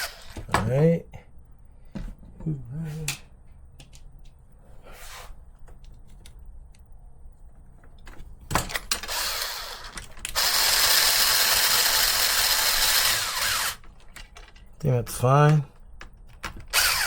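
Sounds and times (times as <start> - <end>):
power screwdriver whirring: 9.1 - 13.8, 16.7 - 17.0.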